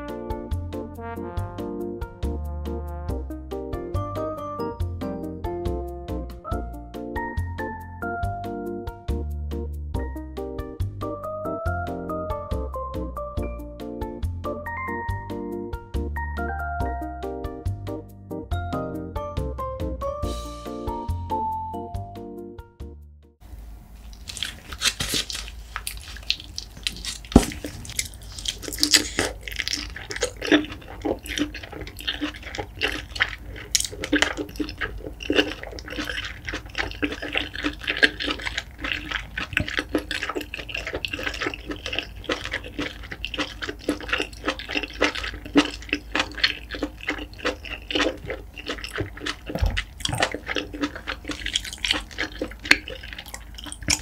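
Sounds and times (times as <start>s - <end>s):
wet chewing and lip smacks: 24.1s - 54.0s.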